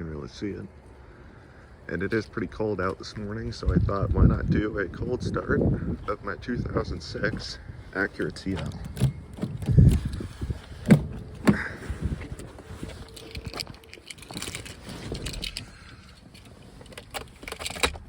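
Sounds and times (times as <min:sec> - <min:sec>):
handling clicks and rustles: 0:06.0 - 0:18.0
keys jangling: 0:12.8 - 0:18.0.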